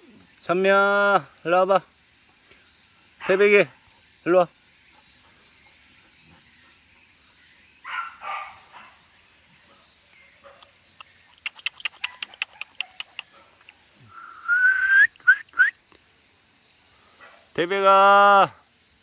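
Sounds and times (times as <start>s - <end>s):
dog barking: 7.8s - 9.0s, 11.9s - 13.2s
sharp clicks: 11.0s - 13.8s
short rising chirps: 14.1s - 15.7s
rising whistle-like call: 14.1s - 15.8s.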